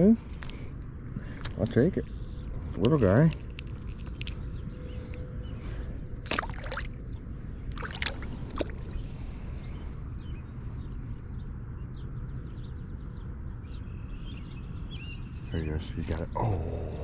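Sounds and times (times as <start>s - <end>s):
steady low rumble: 0.0s - 17.0s
water sloshing and splashing: 6.2s - 9.1s.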